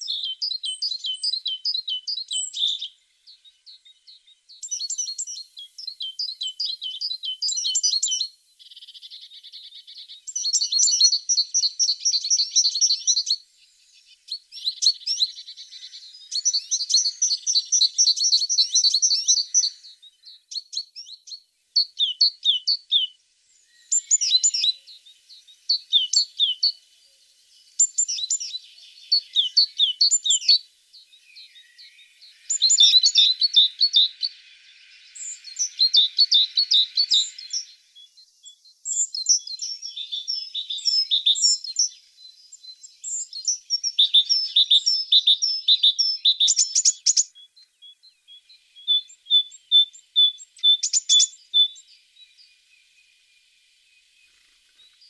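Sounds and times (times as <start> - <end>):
bird chirps and trills: 0.0 - 53.3.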